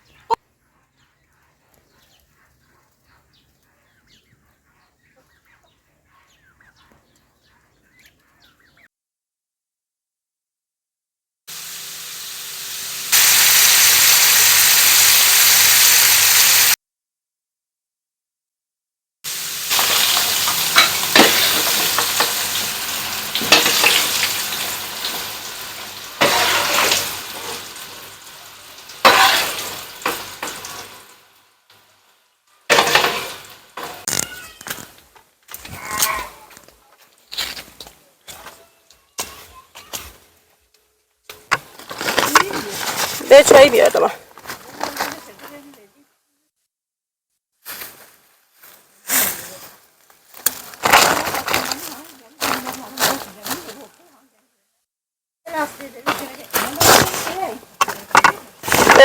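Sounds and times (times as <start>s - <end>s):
potatoes sizzling in hot oil: 11.5s - 16.8s, 19.3s - 35.0s, 42.0s - 44.1s, 55.5s - 59.0s
stirring clicks and scrapes: 29.0s - 31.1s, 39.2s - 43.4s, 55.7s - 59.0s.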